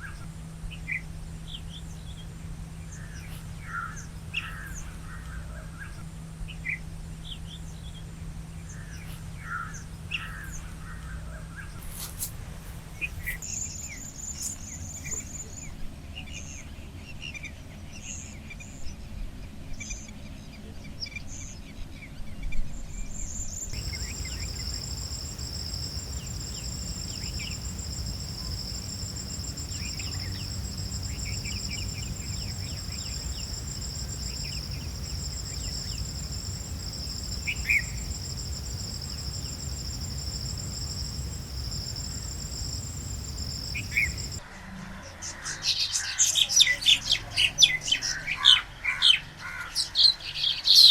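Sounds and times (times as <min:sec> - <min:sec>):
bird chirps: 0:23.8 - 0:44.4
insects trilling: 0:23.8 - 0:44.4
low outdoor rumble: 0:23.8 - 0:44.4.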